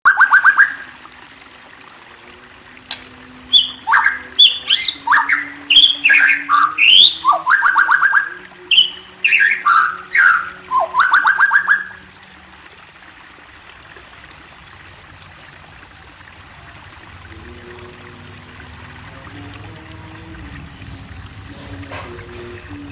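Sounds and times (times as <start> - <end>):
songbird singing: 0.0 - 0.9, 2.9 - 12.0.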